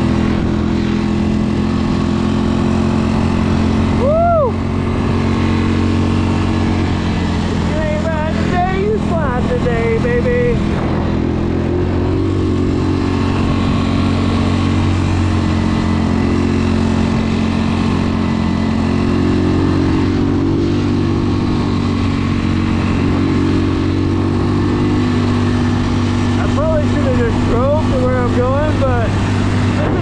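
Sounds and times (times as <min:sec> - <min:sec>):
atv engine running: 0:00.0 - 0:30.0.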